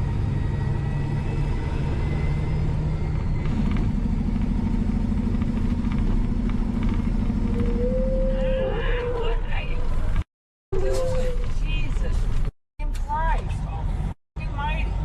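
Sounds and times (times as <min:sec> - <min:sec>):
vehicle engine rumble inside cab: 0:00.0 - 0:15.0.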